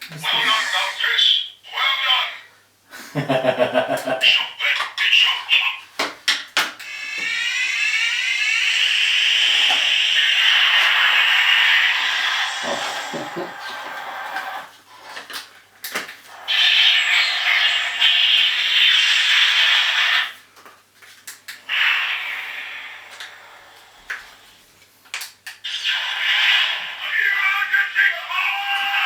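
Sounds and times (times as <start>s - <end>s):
electronic hissing whooshes: 6.9s - 14.8s.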